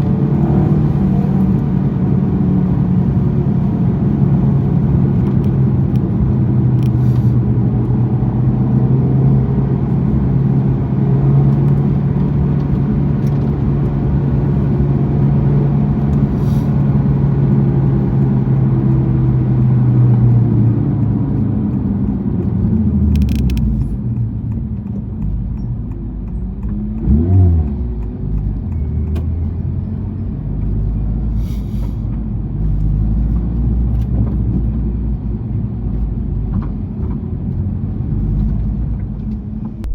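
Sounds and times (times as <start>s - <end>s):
car engine revving: 0.0s - 31.3s.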